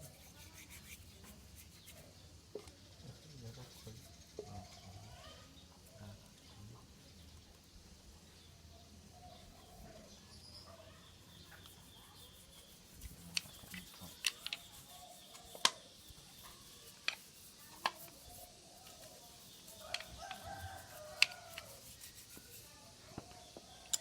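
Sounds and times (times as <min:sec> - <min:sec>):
rooster crowing: 0:19.8 - 0:21.9.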